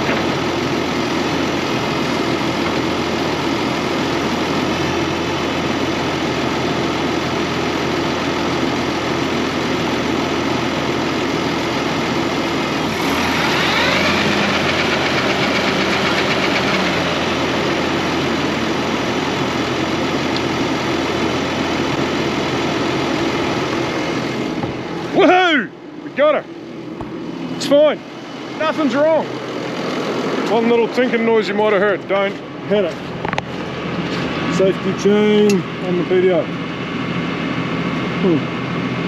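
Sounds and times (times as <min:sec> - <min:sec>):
tractor engine running: 0:00.0 - 0:39.0
rising whine: 0:12.8 - 0:19.1.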